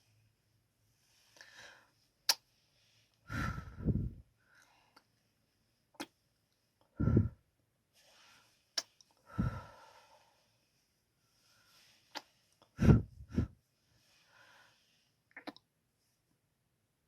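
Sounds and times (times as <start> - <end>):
lip smacks: 15.3 - 15.6.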